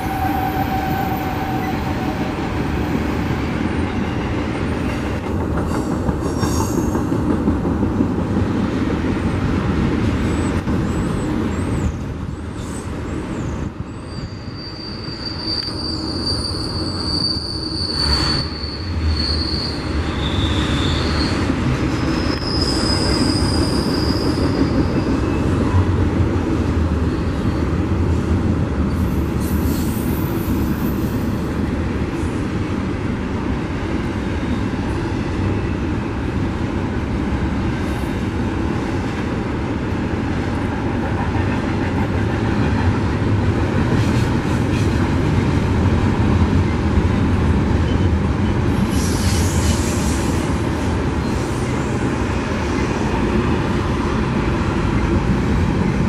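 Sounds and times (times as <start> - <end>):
high-pitched wheel squeals: 12.7 - 25.1.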